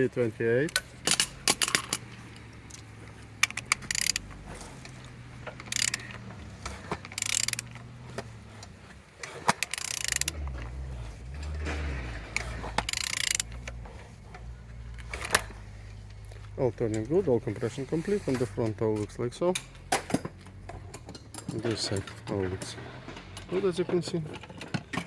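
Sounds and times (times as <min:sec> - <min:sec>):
ratchet wrench clicking: 0:00.7 - 0:02.1, 0:02.7 - 0:08.7, 0:09.4 - 0:10.7, 0:12.3 - 0:13.8.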